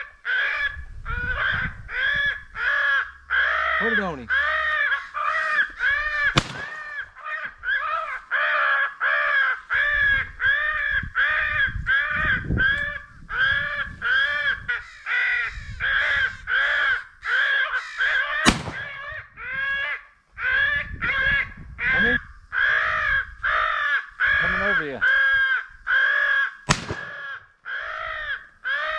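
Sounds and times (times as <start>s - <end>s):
crow cawing: 0.0s - 28.9s
sharp crack: 6.3s - 7.0s, 18.4s - 19.1s, 26.7s - 27.4s.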